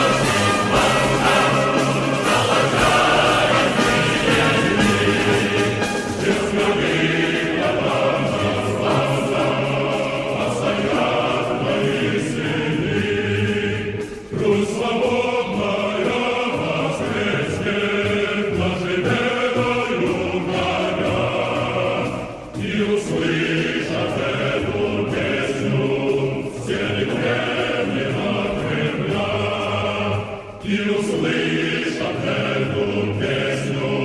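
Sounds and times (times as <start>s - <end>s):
choir singing a march song: 0.0s - 34.0s.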